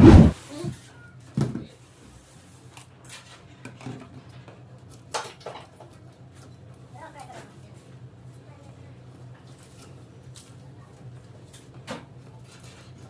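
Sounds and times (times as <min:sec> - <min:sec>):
steady low hum: 0:00.0 - 0:00.4.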